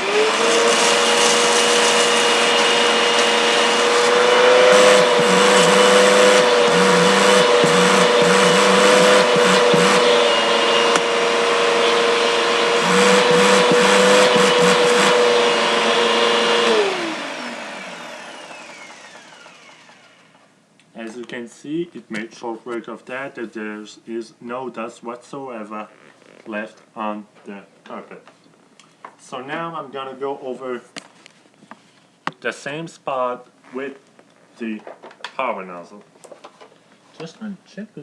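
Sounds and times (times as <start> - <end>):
litter crackling up vacuum hose: 0.0 - 11.6
vacuum cleaner running: 0.0 - 20.5.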